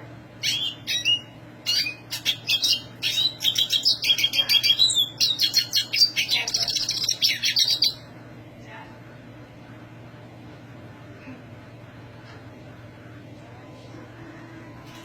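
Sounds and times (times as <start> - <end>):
bird twittering song: 0.4 - 8.1.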